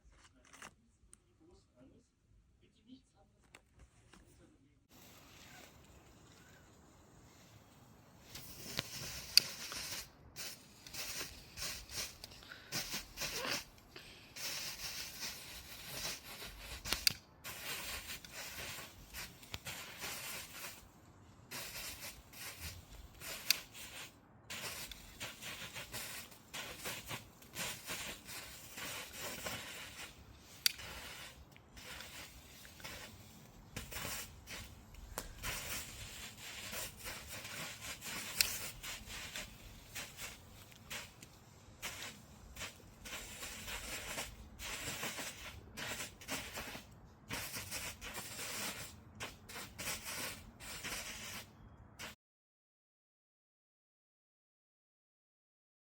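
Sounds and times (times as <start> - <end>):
firework fountain hissing: 4.9 - 52.2
firework cracks: 8.2 - 20.9, 21.5 - 52.2.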